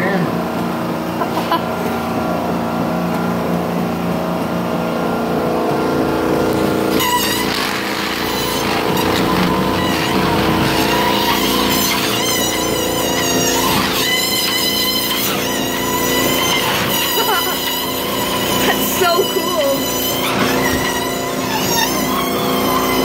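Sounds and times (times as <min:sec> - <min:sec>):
treadmill motor whine: 0:00.0 - 0:23.0
tire squealing on belt: 0:06.8 - 0:23.0.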